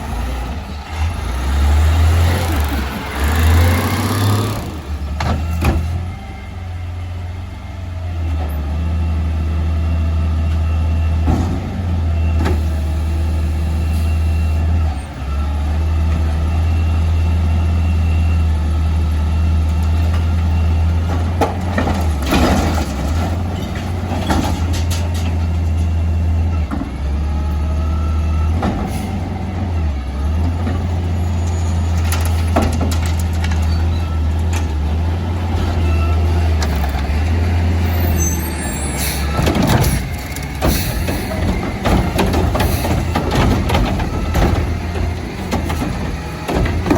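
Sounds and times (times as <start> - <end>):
garbage truck engine droning: 0.0 - 46.9
sharp clanks and knocks: 39.3 - 46.9.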